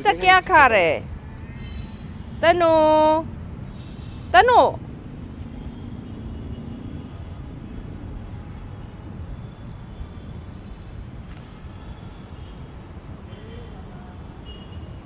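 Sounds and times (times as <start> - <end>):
distant traffic rumble: 0.0 - 1.2.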